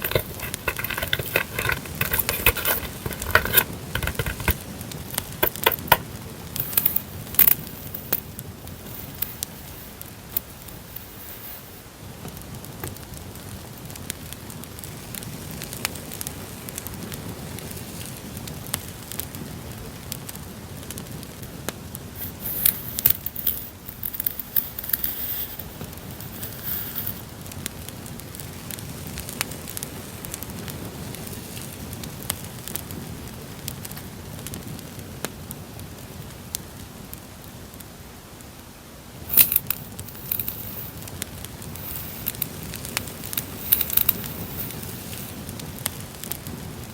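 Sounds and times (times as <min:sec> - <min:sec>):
rustling of handled items: 0:00.0 - 0:11.8, 0:22.2 - 0:27.2, 0:39.3 - 0:45.5
campfire crackling: 0:00.0 - 0:46.9.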